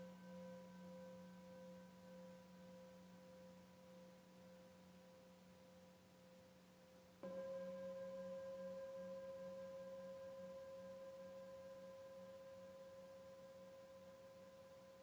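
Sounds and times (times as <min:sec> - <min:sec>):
singing bowl ringing: 0:07.2 - 0:15.0.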